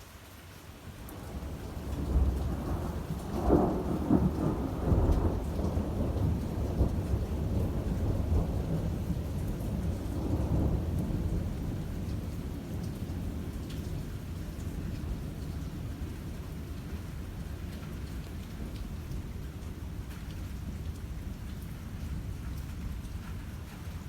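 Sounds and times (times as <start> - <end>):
steady rain: 0.0 - 24.0
thunder rumbling and cracking: 1.2 - 14.0.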